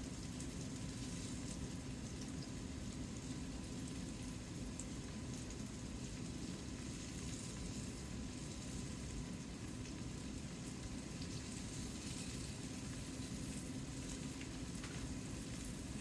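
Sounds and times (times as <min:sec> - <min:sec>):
tofu sizzling in a skillet: 0:00.0 - 0:16.0.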